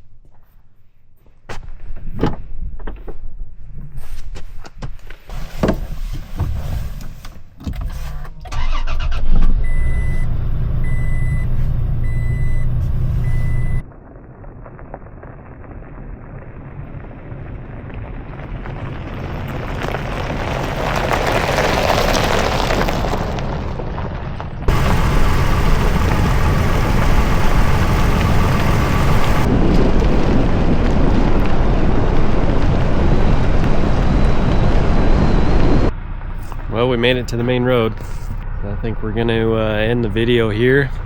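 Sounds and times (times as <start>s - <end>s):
truck engine starting and running: 5.3s - 13.8s, 24.6s - 41.0s
driving noise: 9.4s - 41.0s.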